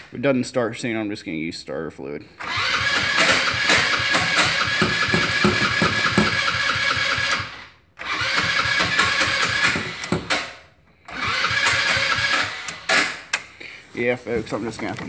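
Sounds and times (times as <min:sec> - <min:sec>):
electric starter cranking engine: 0:02.4 - 0:13.4.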